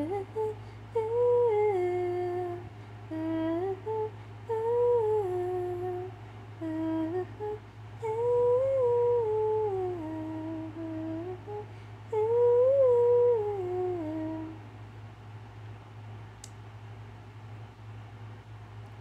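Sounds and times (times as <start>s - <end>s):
woman humming a melody: 0.0s - 14.6s
steady low hum: 0.0s - 19.0s
click: 16.4s - 16.6s.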